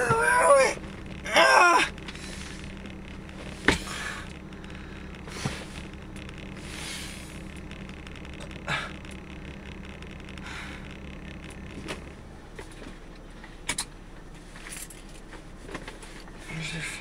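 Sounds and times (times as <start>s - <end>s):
car engine humming: 0.0s - 17.0s
sharp clicks and knocks: 0.8s - 13.9s.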